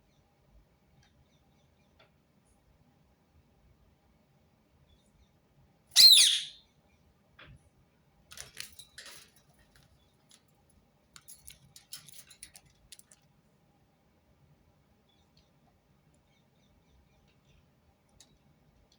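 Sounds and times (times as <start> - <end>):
parakeet screech: 6.0 - 6.6.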